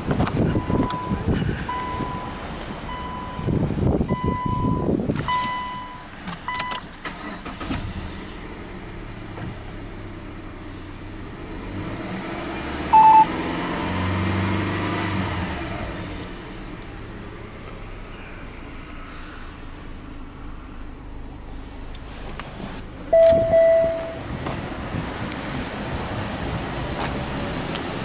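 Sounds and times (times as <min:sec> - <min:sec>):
car engine starting and revving: 0:00.0 - 0:19.6, 0:20.2 - 0:28.0
dashboard warning chime: 0:00.6 - 0:02.3, 0:04.1 - 0:06.8, 0:12.9 - 0:13.3, 0:23.1 - 0:24.2
short electronic beep: 0:12.9 - 0:13.3, 0:23.1 - 0:24.2.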